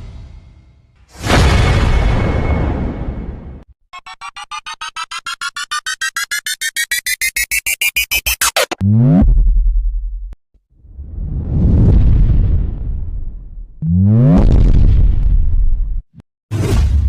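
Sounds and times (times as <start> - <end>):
rising pulsing beep: 4.0 - 9.2.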